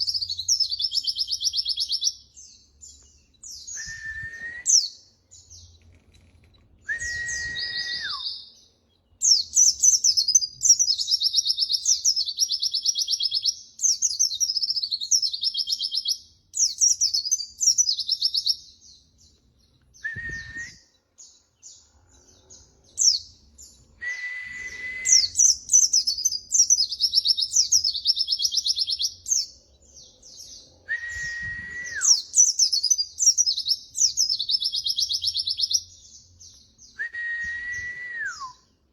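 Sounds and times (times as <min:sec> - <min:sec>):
flat lower whistle: 0:03.8 - 0:04.7, 0:06.9 - 0:08.2, 0:24.0 - 0:25.4, 0:30.9 - 0:32.2, 0:37.0 - 0:38.6.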